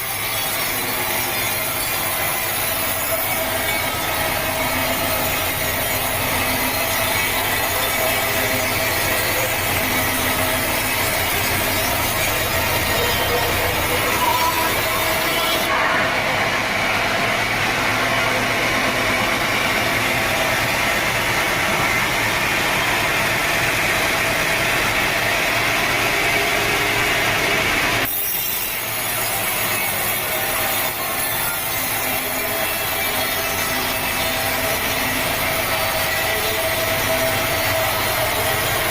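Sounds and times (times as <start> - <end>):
sawmill saw cutting log: 0.0 - 38.9.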